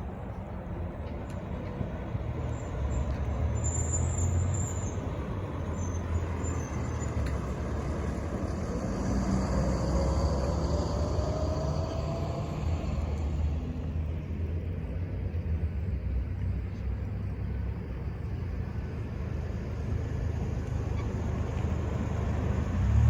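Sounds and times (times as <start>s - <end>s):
diesel engine rumble: 0.0s - 23.0s
high squeal: 2.5s - 7.2s.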